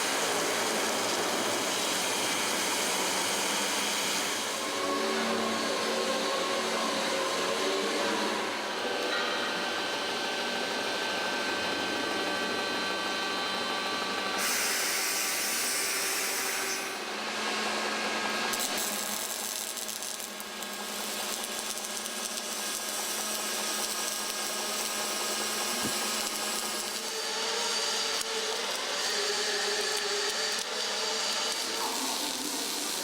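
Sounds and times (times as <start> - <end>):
welding hiss: 14.4 - 17.0, 18.5 - 33.0.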